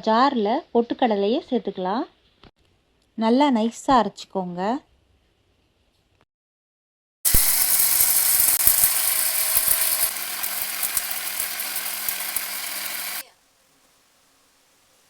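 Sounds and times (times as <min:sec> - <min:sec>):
mixer grinder grinding: 0:07.3 - 0:13.2.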